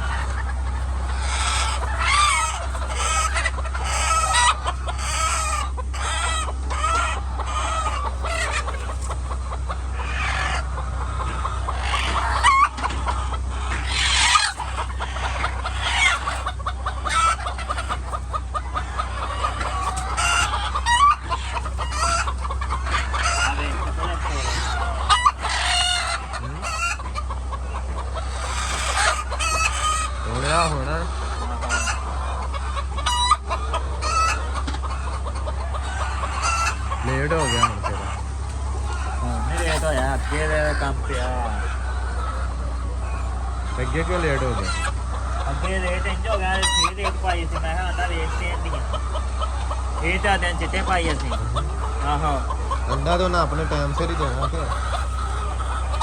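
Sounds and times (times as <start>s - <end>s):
chickens clucking: 0.0s - 56.0s
steady low hum: 0.0s - 56.0s.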